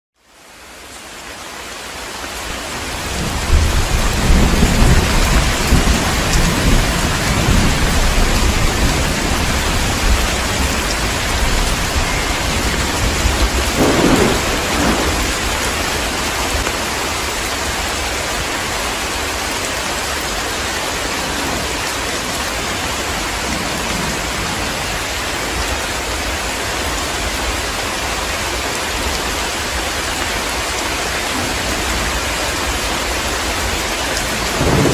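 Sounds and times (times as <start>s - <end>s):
heavy rain: 0.2s - 34.9s
thunder rumbling: 2.6s - 18.0s, 20.2s - 26.3s, 31.3s - 34.9s.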